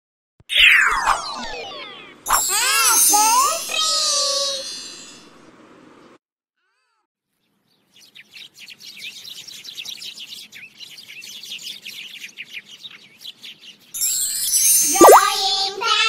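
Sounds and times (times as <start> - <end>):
songbirds chirping: 7.3 - 13.9.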